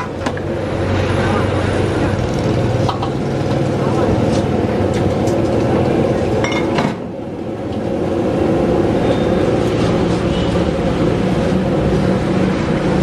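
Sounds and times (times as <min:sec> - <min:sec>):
low rumbling noise: 0:00.0 - 0:13.0.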